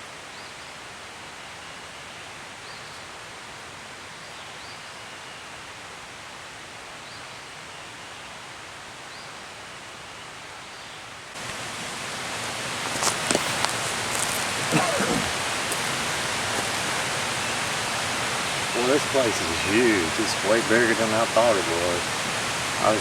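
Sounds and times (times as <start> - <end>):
creek rushing: 11.3 - 23.0.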